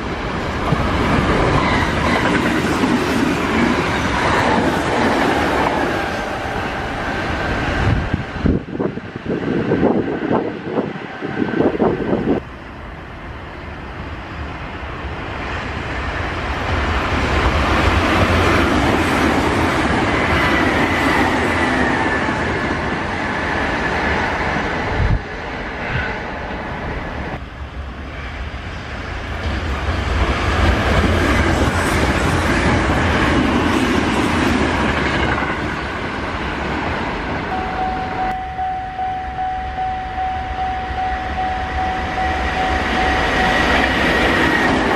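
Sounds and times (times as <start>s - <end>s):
rail clatter: 0.3s - 12.4s
steady high tone: 37.5s - 44.9s.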